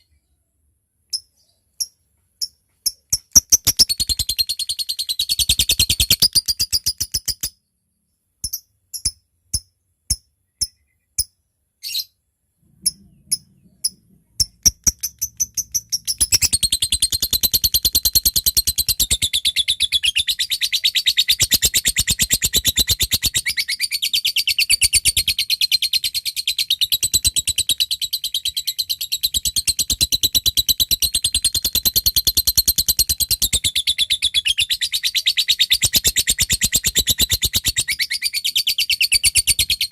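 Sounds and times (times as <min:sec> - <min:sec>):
lovebird sharp ticking calls: 0:01.1 - 0:07.6, 0:12.8 - 0:23.7, 0:26.5 - 0:39.9
lovebird rapid chatter: 0:02.9 - 0:07.5, 0:12.8 - 0:39.9.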